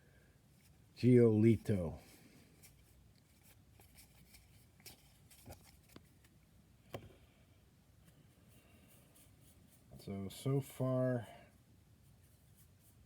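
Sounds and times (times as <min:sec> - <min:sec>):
cards being handled and flipped: 0:01.7 - 0:07.0.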